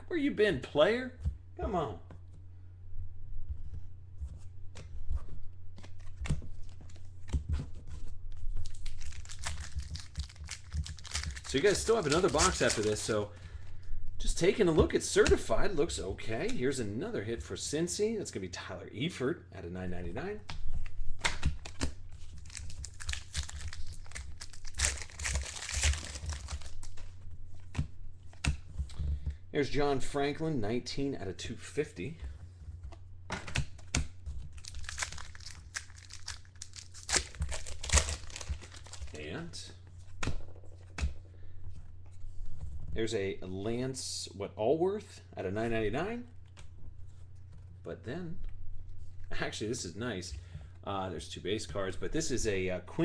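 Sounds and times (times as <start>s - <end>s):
low electrical hum: 0.0s - 53.0s
wrapper crinkling and tearing: 8.6s - 13.2s, 21.6s - 27.1s, 34.5s - 39.3s.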